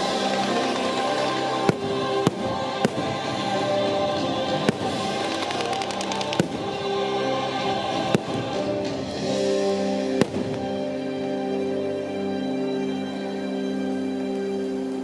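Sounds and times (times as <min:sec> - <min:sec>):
fireworks crackling: 0:00.0 - 0:07.0
orchestral music with choir: 0:00.0 - 0:15.0.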